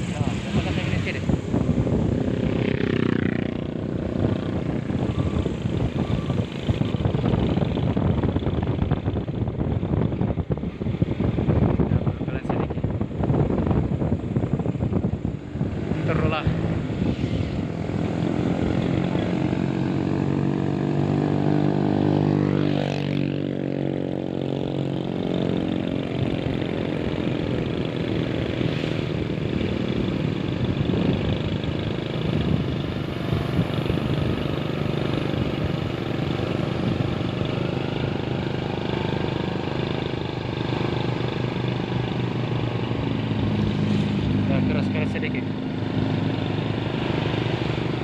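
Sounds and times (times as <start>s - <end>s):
truck engine running: 24.4s - 48.0s.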